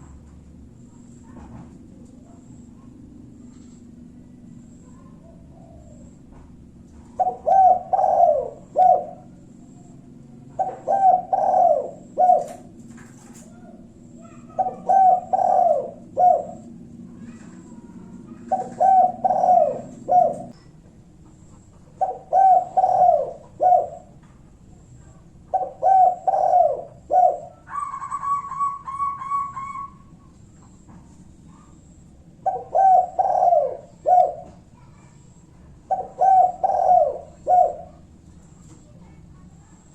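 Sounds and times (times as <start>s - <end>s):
dove cooing: 2.3s - 6.3s, 7.1s - 20.6s, 21.2s - 30.8s, 32.3s - 38.2s.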